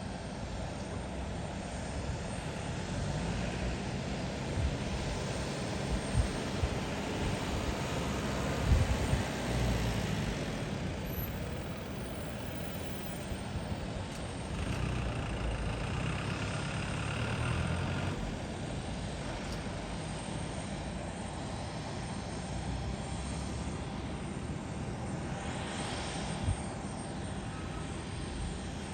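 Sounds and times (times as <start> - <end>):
vehicle engine rumble: 0.9 - 21.6.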